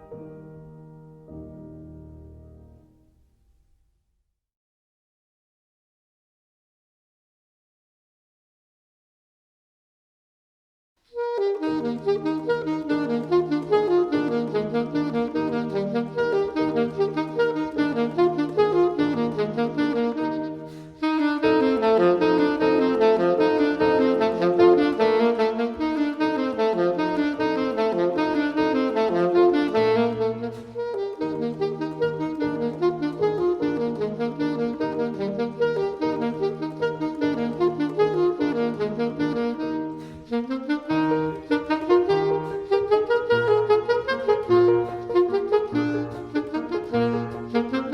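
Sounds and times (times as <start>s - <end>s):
piano accompaniment: 0.0s - 3.7s, 11.2s - 47.9s
saxophone melody: 11.1s - 47.9s.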